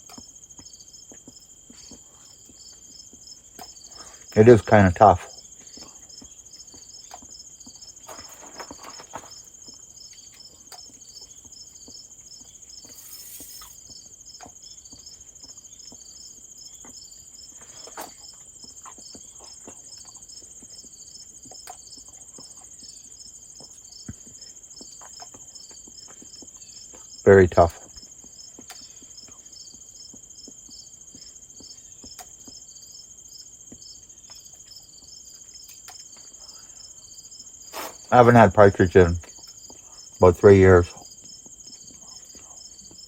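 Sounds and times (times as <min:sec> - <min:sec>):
crickets chirping: 0:00.0 - 0:43.0
faint clicks and taps: 0:33.4 - 0:36.3.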